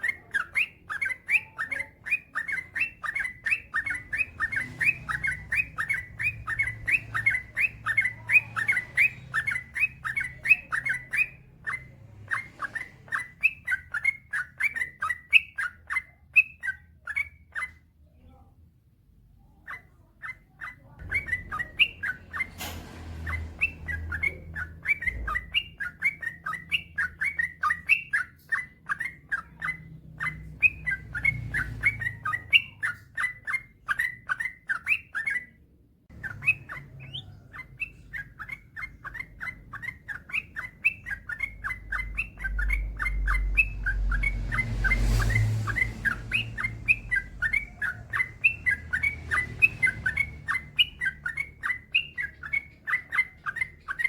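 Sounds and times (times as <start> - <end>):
bird singing chirping notes: 0.0 - 18.4, 19.4 - 54.0
low rumble: 41.6 - 50.8.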